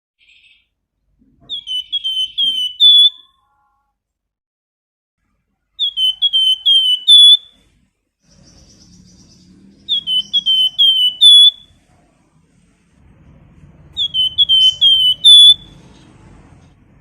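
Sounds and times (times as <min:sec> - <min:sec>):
songbird whistling: 0:01.5 - 0:03.4, 0:05.8 - 0:07.6, 0:08.3 - 0:11.8, 0:14.0 - 0:15.9.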